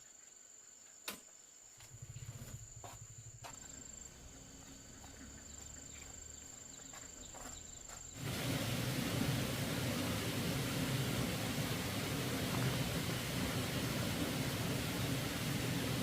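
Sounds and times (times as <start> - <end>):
insects trilling: 0.0 - 8.4
loud rushing noise: 8.2 - 16.0
low fast pulsing: 8.2 - 16.0.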